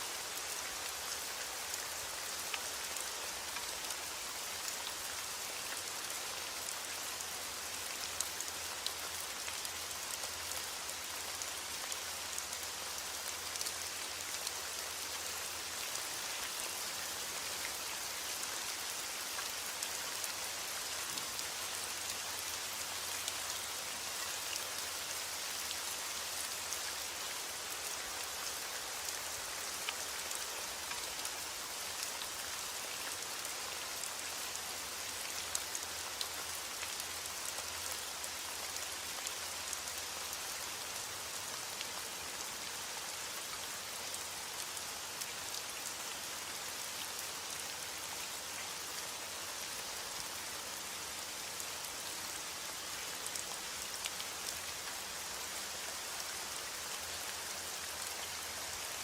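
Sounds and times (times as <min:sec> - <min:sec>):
steady rain hiss: 0:00.0 - 0:59.0
raindrops ticking on a surface: 0:00.2 - 0:47.2.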